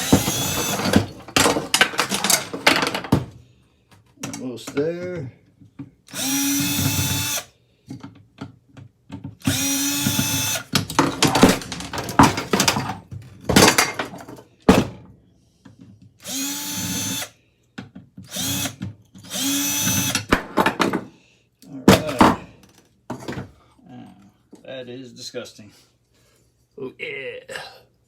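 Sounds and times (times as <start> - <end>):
power drill running: 0.0 - 1.1, 6.1 - 7.5, 9.4 - 10.7, 16.2 - 17.3, 18.3 - 20.3
metal parts clinking and rattling: 0.2 - 3.1.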